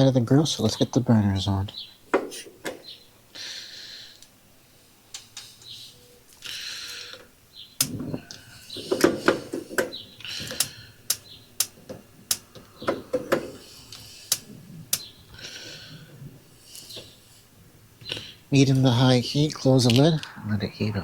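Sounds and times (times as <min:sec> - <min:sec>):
gas burner hiss: 0:03.4 - 0:20.8
grill igniter clicks: 0:07.8 - 0:08.4, 0:09.0 - 0:12.7, 0:13.9 - 0:15.1
grill knobs knocking: 0:07.8 - 0:13.7.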